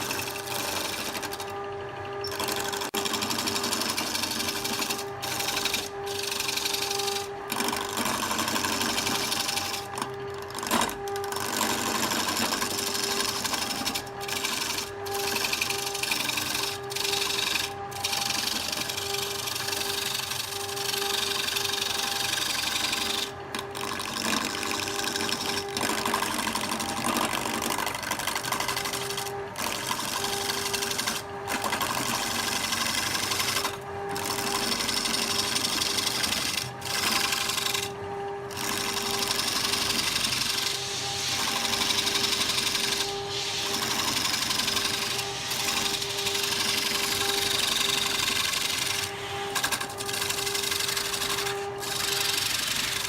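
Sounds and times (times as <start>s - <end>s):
lathe motor hum: 0.0s - 53.0s
cutting tool hissing on wood: 39.0s - 53.0s.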